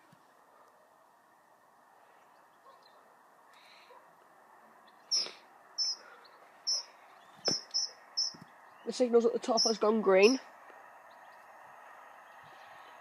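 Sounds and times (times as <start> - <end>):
small bird chirping: 4.8 - 10.4.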